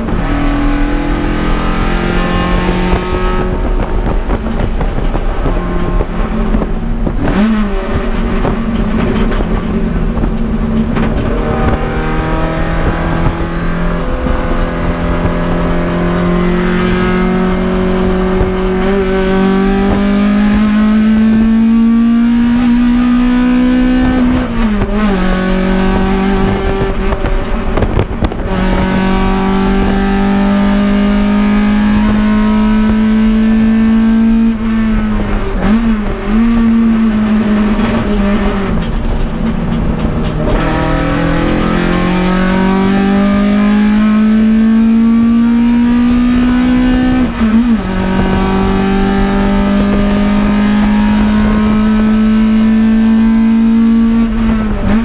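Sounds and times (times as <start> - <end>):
car engine revving hard: 0.0 - 55.0.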